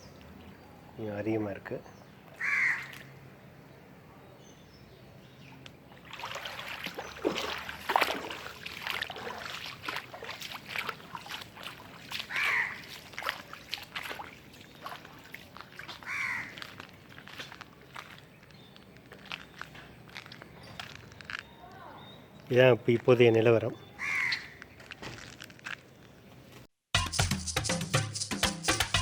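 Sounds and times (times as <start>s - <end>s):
crow cawing: 2.4s - 3.2s, 12.3s - 12.9s, 16.0s - 16.7s, 24.0s - 24.6s.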